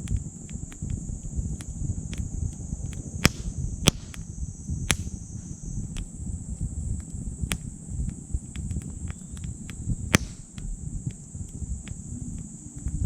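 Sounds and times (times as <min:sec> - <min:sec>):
high-pitched insect chorus: 0:00.0 - 0:13.0
wood fire crackling in a stove: 0:00.0 - 0:13.0
sharp loud pops: 0:03.0 - 0:06.1, 0:08.6 - 0:10.9.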